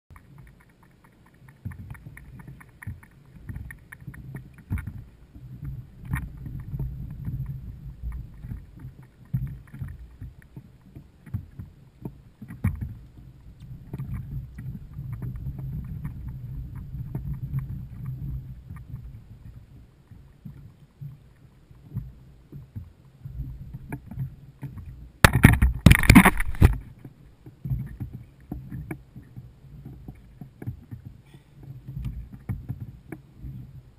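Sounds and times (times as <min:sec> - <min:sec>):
small ticks and knocks: 0:00.1 - 0:33.9
water sloshing against kayak hull: 0:00.1 - 0:33.9
steady low rumble: 0:02.0 - 0:09.0.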